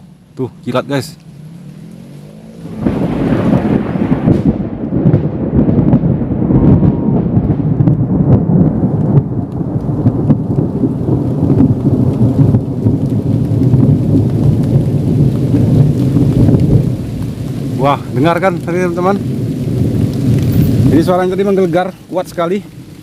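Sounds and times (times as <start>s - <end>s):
thunder rumbling: 0.0s - 23.0s.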